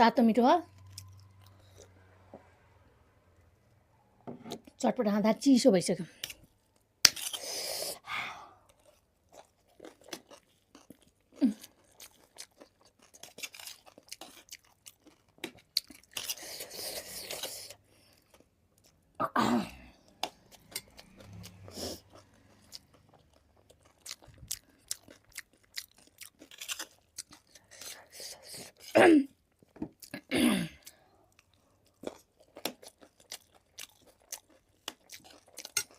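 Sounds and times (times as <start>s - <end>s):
person chewing and crunching: 6.2s - 8.0s, 8.6s - 19.2s, 20.0s - 28.9s, 29.5s - 35.9s.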